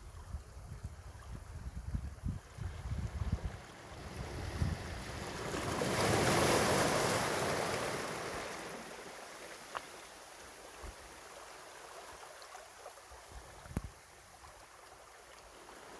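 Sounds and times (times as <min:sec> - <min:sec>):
surf washing: 0:02.4 - 0:13.0
wave breaking on pebble shore: 0:04.1 - 0:08.9
faint ticks: 0:09.6 - 0:10.1, 0:13.6 - 0:14.0.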